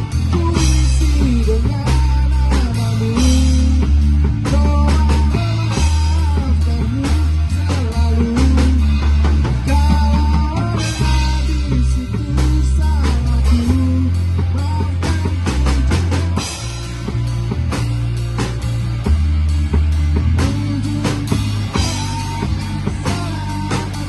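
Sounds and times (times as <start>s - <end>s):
drum kit with cymbal hits: 0.0s - 24.0s
electric guitar lead lines: 0.0s - 24.0s
heavy bass line: 0.0s - 24.0s.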